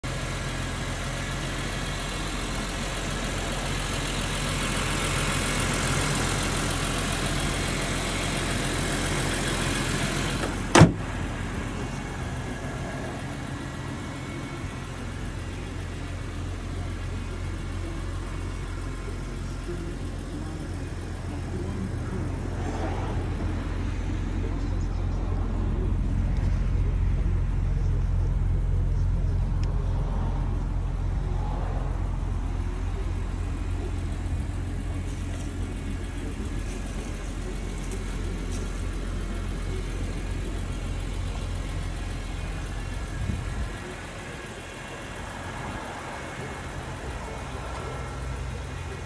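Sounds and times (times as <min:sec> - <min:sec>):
car engine idling: 0:00.0 - 0:49.0
car hood slamming shut: 0:10.4 - 0:11.1.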